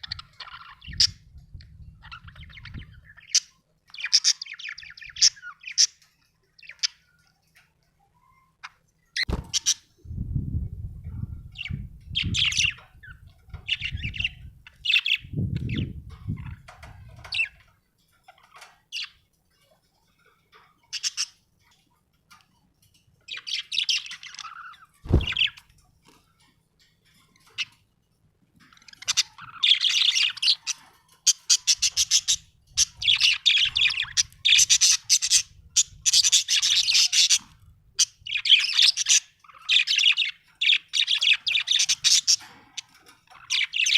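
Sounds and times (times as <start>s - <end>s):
budgerigar chirping and chattering: 0.0s - 7.1s, 11.5s - 17.6s, 20.8s - 21.4s, 23.2s - 25.6s, 28.6s - 43.9s.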